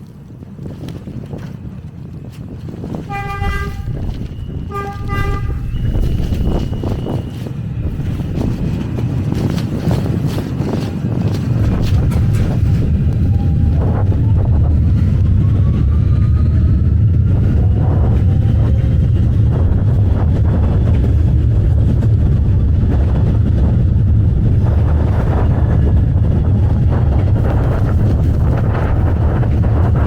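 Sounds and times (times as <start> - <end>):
subway train rumbling: 1.6 - 30.0
train whines: 3.1 - 30.0.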